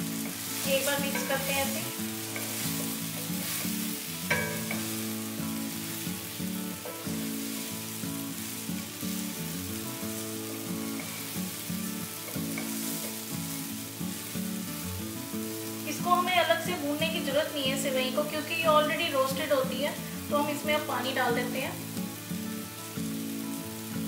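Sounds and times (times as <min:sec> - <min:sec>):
wooden spatula stirring: 0:00.0 - 0:13.8
oil sizzling in a wok: 0:00.0 - 0:24.0.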